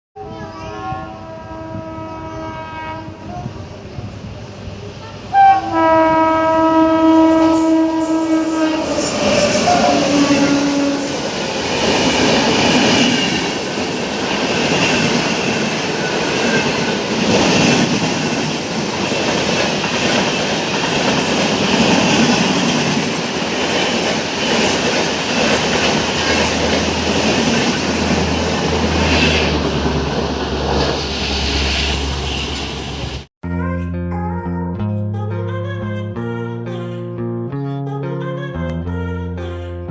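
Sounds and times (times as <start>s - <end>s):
locomotive horn blast: 0.7s - 3.3s, 5.0s - 11.4s
train coaches rushing past: 6.9s - 33.3s.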